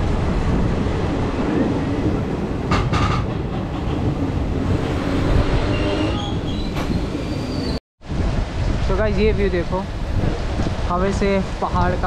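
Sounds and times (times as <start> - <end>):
train wheels rumbling on rails: 0.0 - 7.8
knocks at rail joints: 2.7 - 4.8
faint high wheel squeals: 5.7 - 7.8.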